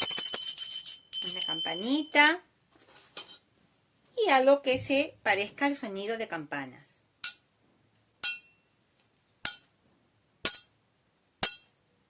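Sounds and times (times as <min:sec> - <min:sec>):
small bell ringing: 0:00.0 - 0:02.4.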